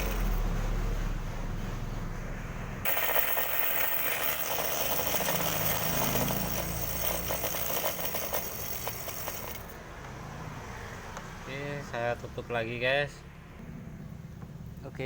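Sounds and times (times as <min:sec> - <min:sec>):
fast metallic rattle of motor: 0:00.0 - 0:00.5, 0:02.8 - 0:09.8.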